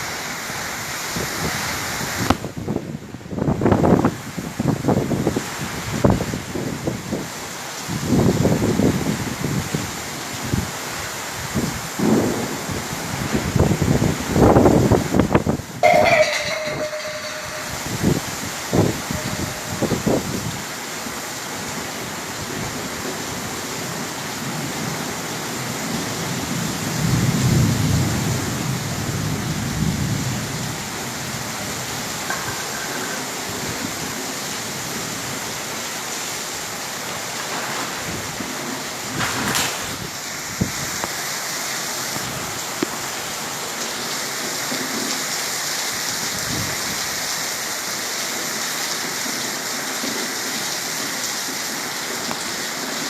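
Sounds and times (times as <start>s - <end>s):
steady rain falling: 0.0s - 53.0s
thunder rumble: 12.0s - 20.6s.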